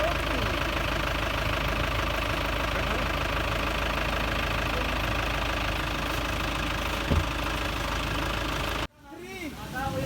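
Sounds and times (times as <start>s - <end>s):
vehicle engine rumbling: 0.0s - 9.0s
low thump: 7.0s - 7.4s.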